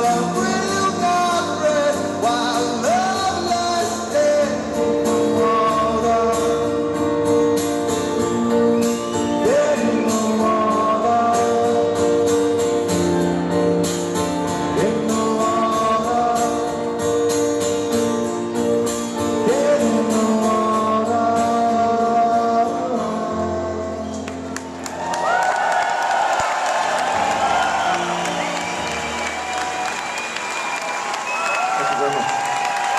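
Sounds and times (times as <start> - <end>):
person singing: 0.0 - 7.2, 8.6 - 12.7, 14.5 - 17.3, 19.2 - 24.4
live rock band playing: 0.0 - 23.5.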